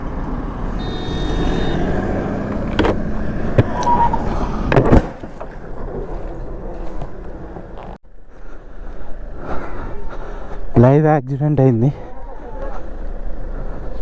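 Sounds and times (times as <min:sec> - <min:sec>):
motorcycle engine: 0:00.0 - 0:08.0
wind rumble: 0:00.0 - 0:10.7
brief high tone: 0:00.7 - 0:02.3.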